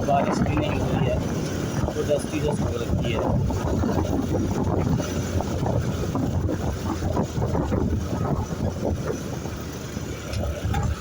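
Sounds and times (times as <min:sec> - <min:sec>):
motorcycle engine drone: 0:00.0 - 0:11.0
wind buffeting microphone: 0:00.0 - 0:11.0.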